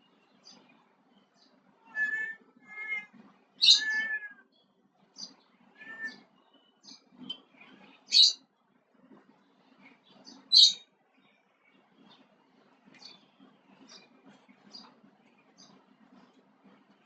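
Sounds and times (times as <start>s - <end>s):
cat meowing: 1.9s - 4.4s, 5.8s - 6.2s.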